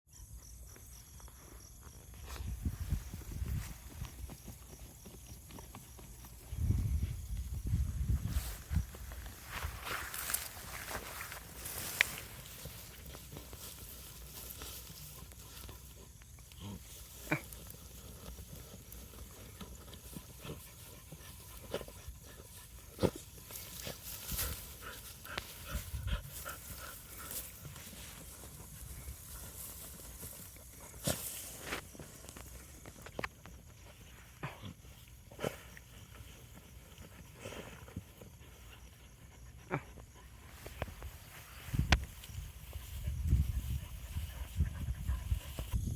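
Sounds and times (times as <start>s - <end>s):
dogs digging in soil: 0.6s - 45.9s.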